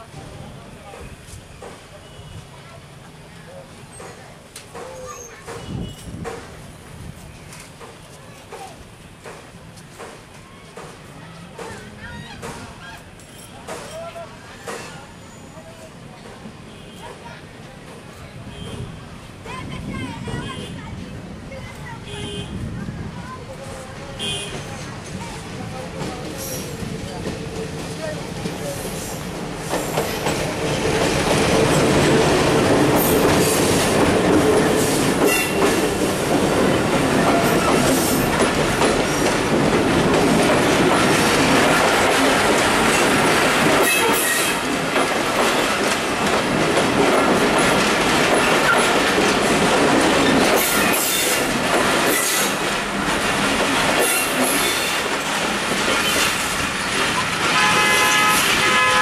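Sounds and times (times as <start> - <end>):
train wheels rumbling on rails: 0.0 - 59.0
clatter over rail joints: 25.9 - 59.0
train horn toot: 57.4 - 59.0.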